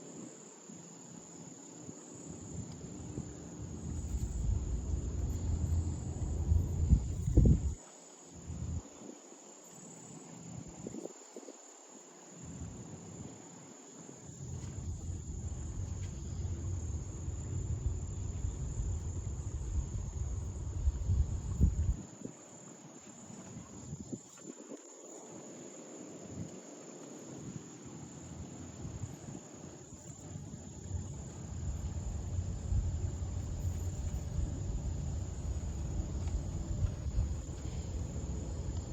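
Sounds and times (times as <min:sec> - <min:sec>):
insects buzzing: 0:00.0 - 0:38.9
low rumble: 0:03.6 - 0:07.8, 0:14.8 - 0:22.0, 0:30.8 - 0:38.9.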